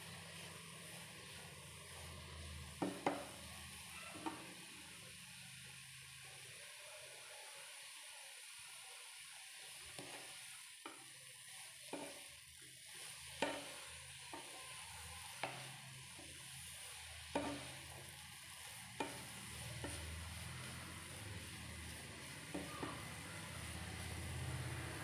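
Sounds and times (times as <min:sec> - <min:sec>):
carrots sizzling in a pan: 0:00.0 - 0:25.0
spatula knocking against pan: 0:13.4 - 0:13.7, 0:17.3 - 0:17.6, 0:19.0 - 0:20.0.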